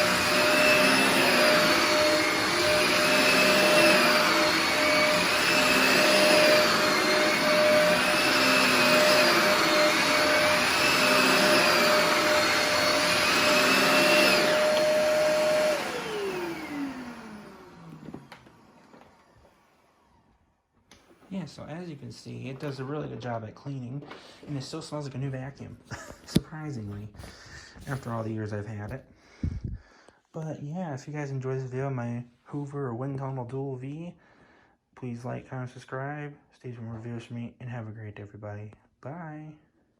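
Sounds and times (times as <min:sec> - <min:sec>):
upright vacuum running: 0:00.0 - 0:20.3
vacuum motor winding down: 0:00.0 - 0:20.3.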